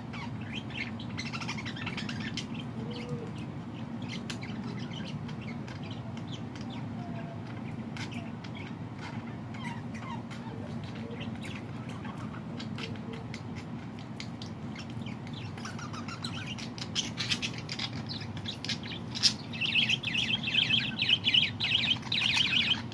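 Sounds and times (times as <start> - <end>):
birds chirping: 0.0 - 22.9
steady low hum: 0.0 - 22.9.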